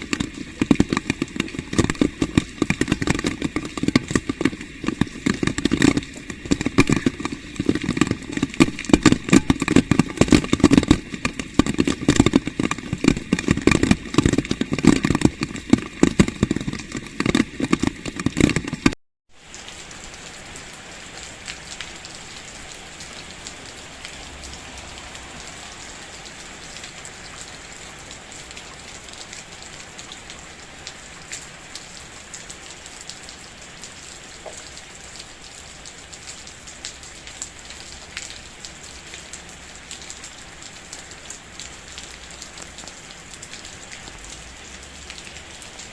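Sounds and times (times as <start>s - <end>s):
steady rain hiss: 0.0s - 18.7s, 19.4s - 45.9s
heavy rain on hard surface: 0.0s - 45.9s.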